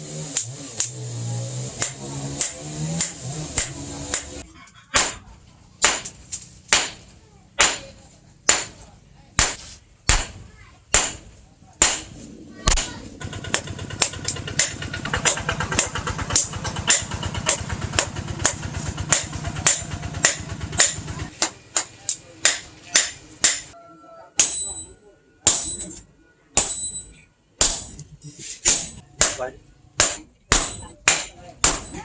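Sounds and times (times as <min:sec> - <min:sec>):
hammer striking steel on anvil: 0:01.7 - 0:04.4, 0:05.0 - 0:08.8, 0:09.4 - 0:23.8, 0:24.4 - 0:32.0
low pulsing mechanical running: 0:12.4 - 0:21.3.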